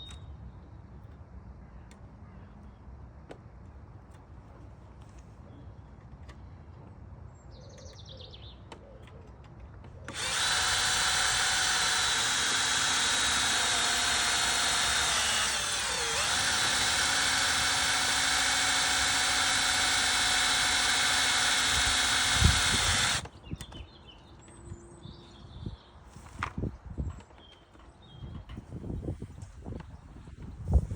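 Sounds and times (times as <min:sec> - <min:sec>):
power drill drilling into metal: 0:10.1 - 0:23.3.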